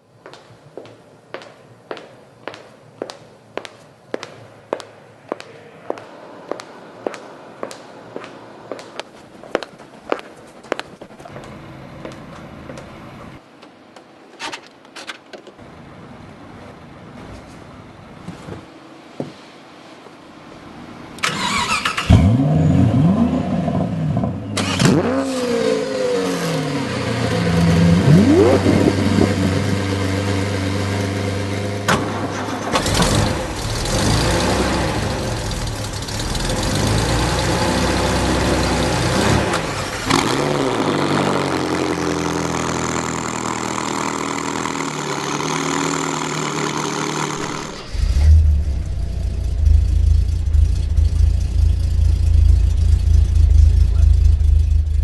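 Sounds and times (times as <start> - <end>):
car engine revving: 21.3 - 55.0
deep uneven rumble: 47.8 - 55.0.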